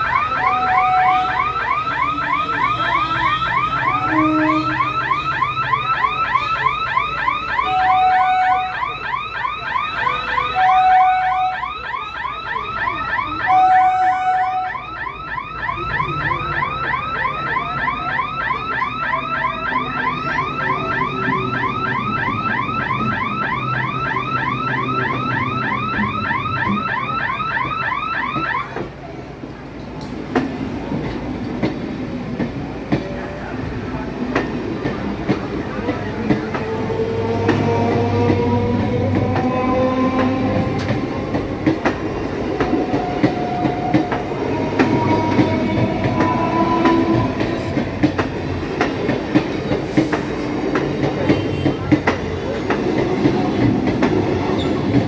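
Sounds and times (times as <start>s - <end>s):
rising electronic chirp alarm: 0.0s - 28.7s
train passing rumble: 0.0s - 55.0s.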